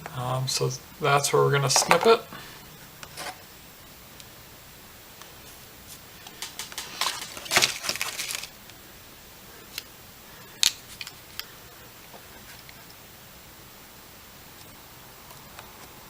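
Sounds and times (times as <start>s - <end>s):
small hard objects clicking: 6.2s - 8.5s.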